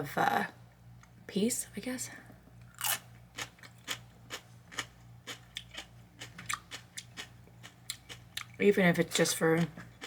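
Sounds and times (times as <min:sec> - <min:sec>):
chewing crunchy sandwich: 0:02.7 - 0:08.6.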